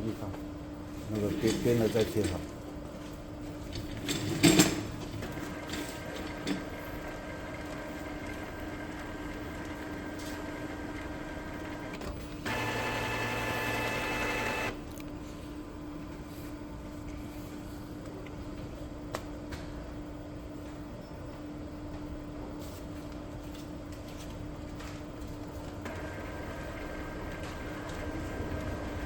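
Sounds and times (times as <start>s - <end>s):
printer motor whine: 5.2s - 14.9s, 25.8s - 29.0s
printer clacks: 5.3s - 14.8s, 25.9s - 28.2s.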